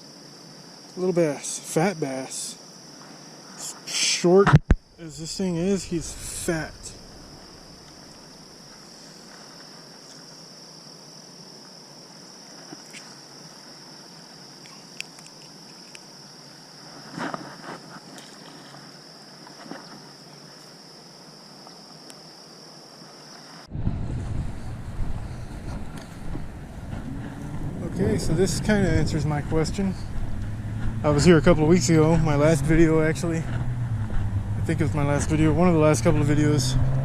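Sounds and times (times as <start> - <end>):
insects chirring: 0.0 - 37.0
wind buffeting microphone: 4.6 - 8.5, 23.7 - 36.2.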